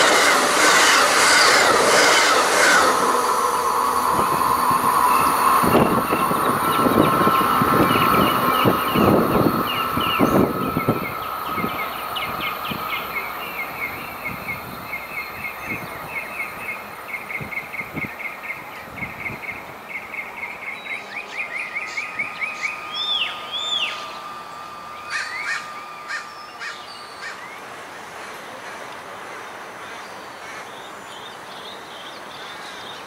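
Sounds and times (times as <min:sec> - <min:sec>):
train rumble: 0:00.0 - 0:31.5
birds chirping: 0:00.8 - 0:33.0
whistled bird notes: 0:05.1 - 0:27.7.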